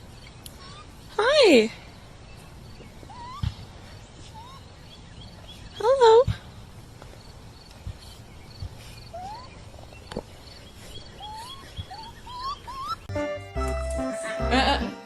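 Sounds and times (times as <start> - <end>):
faint high-pitched chirping: 7.2 - 13.1
music: 13.1 - 15.0.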